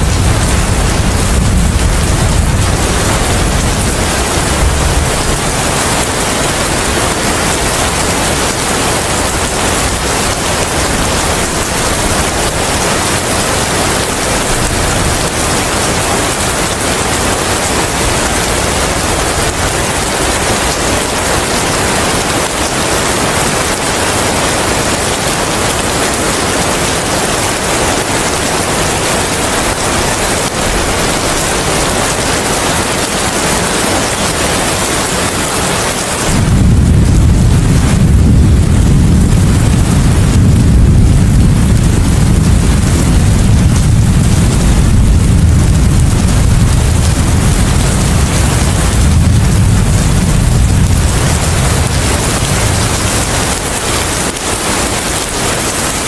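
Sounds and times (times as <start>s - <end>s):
low rumble: 0.0s - 13.1s, 36.3s - 55.3s
rain and wind hiss: 0.0s - 56.0s.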